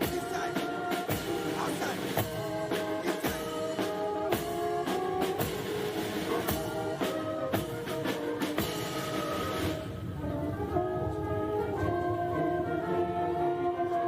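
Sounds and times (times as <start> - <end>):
sharp drum strokes: 0.0 - 10.0
band playing held notes: 0.0 - 14.0.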